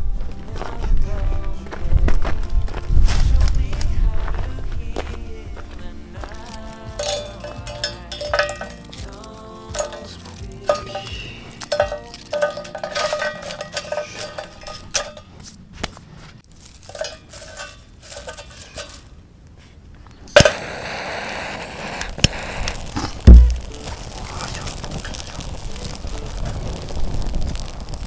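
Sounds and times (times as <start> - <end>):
heavy low thump: 2.8 - 4.4, 23.3 - 23.8
metal cookware clinking and scraping: 7.0 - 15.6, 16.7 - 19.3
steady hiss: 7.0 - 28.0.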